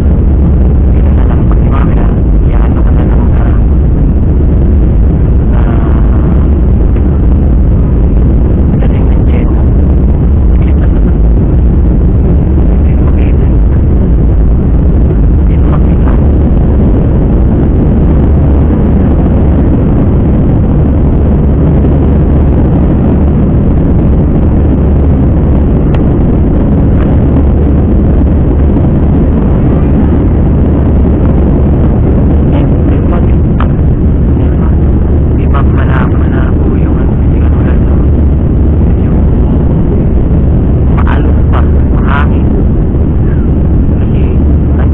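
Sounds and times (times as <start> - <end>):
jet engine rumble in cabin: 0.0 - 44.9.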